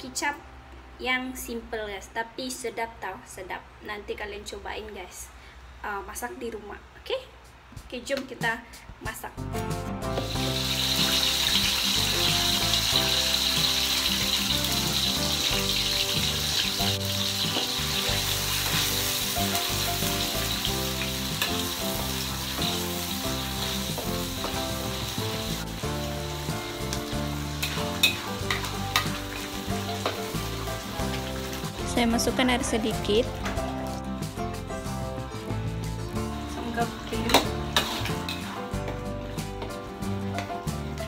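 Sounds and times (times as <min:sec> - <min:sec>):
chili paste sizzling in oil: 0:10.0 - 0:41.0.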